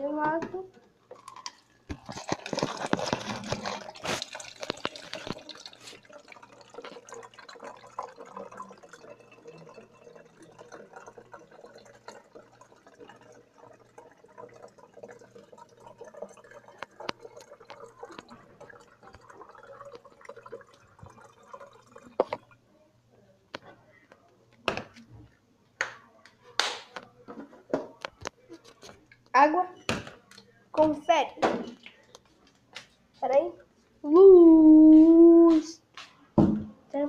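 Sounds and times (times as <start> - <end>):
objects rustling and knocking: 0.2 - 6.1, 26.8 - 29.0.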